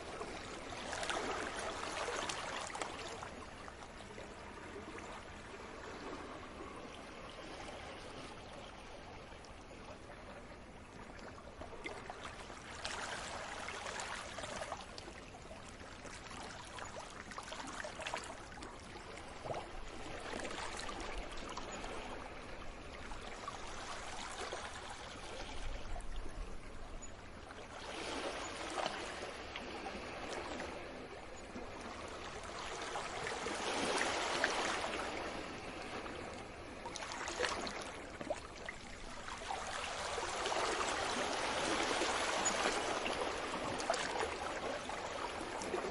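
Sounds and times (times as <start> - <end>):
sea waves washing onto shore: 27.7 - 45.9.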